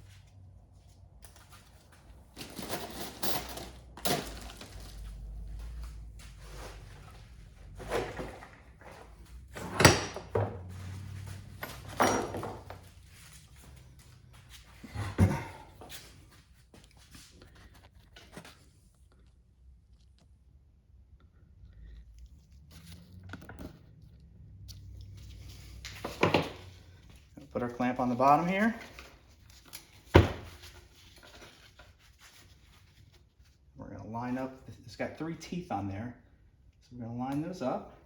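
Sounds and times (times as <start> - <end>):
tools knocking and clattering: 11.6 - 12.9.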